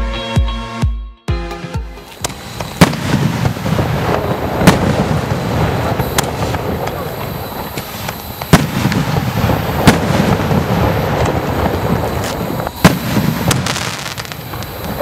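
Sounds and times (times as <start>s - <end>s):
firework shells bursting: 2.1s - 15.0s.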